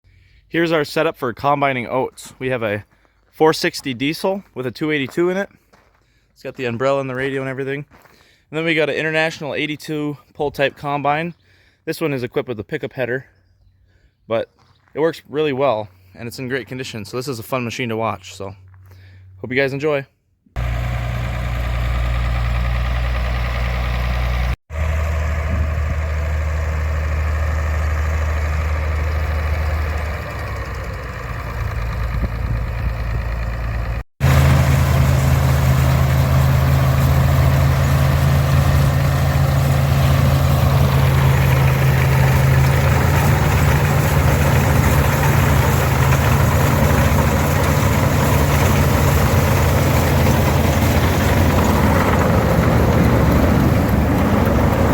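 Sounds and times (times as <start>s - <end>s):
machinery noise: 20.6s - 54.9s
tractor diesel engine running: 20.6s - 54.9s.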